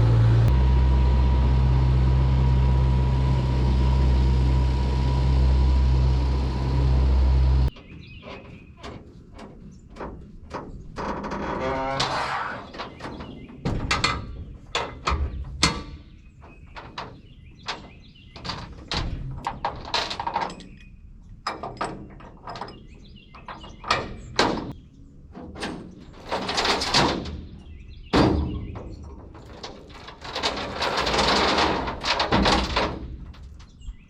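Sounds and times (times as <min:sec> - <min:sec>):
knocks thuds and clatters: 0:12.7 - 0:20.8, 0:23.4 - 0:33.8.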